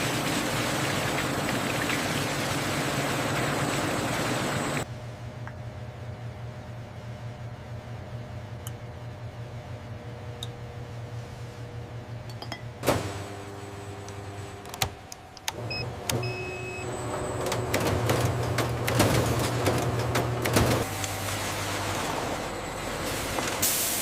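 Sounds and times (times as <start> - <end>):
factory machinery humming: 0.0 - 24.0.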